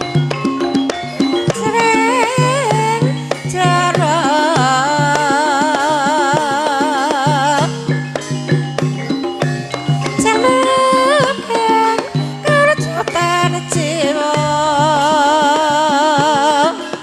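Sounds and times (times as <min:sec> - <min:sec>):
drum strokes: 0:00.0 - 0:17.0
gamelan percussion: 0:00.0 - 0:17.0.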